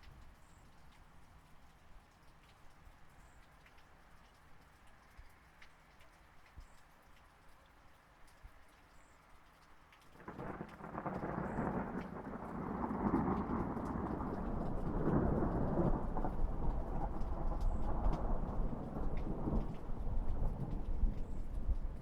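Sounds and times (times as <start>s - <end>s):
rain: 0.0s - 22.0s
water dripping: 0.0s - 22.0s
rolling thunder: 10.3s - 22.0s.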